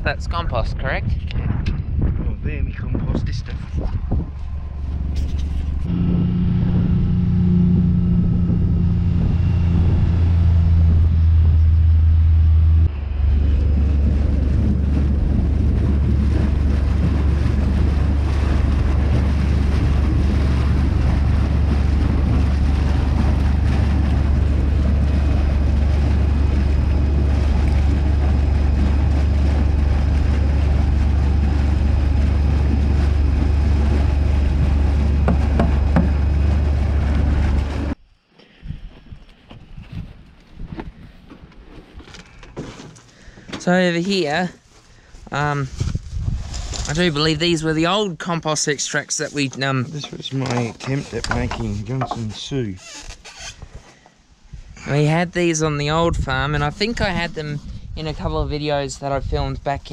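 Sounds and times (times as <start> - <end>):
rough engine rumble: 1.3 - 38.3
vehicle engine humming: 4.0 - 38.0.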